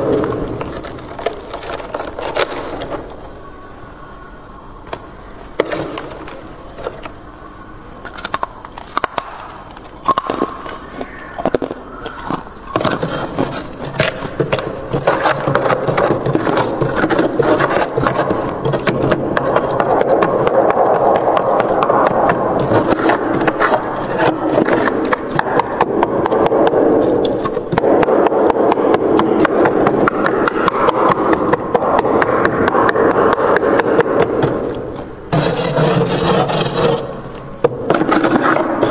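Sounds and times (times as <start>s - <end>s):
freezer frost being scraped: 12.7s - 27.8s, 34.6s - 38.9s.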